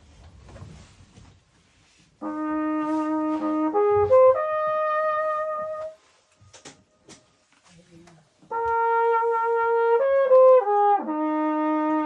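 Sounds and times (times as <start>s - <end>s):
trumpet playing: 2.2s - 6.4s, 8.5s - 12.0s.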